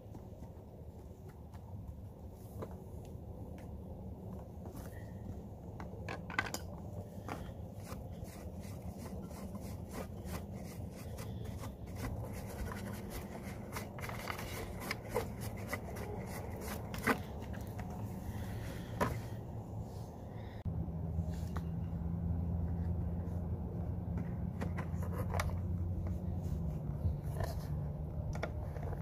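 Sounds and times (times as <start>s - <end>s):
low background rumble: 0.0s - 29.0s
cloth rag wiping plastic: 7.2s - 17.7s.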